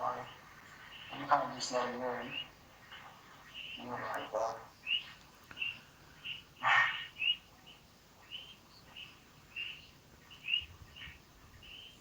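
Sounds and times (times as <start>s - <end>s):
bird chirping: 0.1s - 12.0s.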